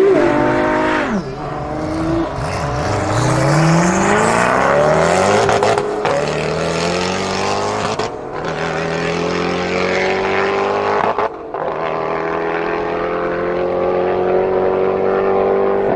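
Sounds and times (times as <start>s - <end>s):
car engine at high revs: 0.0s - 15.9s.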